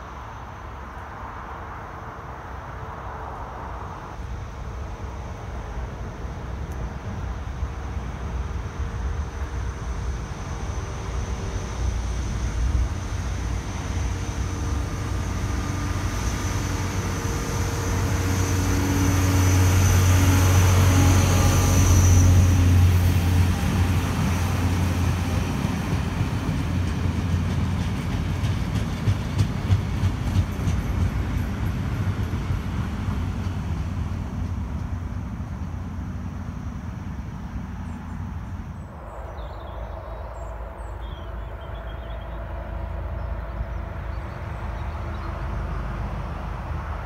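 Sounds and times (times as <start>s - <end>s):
diesel locomotive engine hum: 0.0s - 47.0s
rail noise: 0.0s - 47.0s
train wheel clicks: 26.4s - 35.0s.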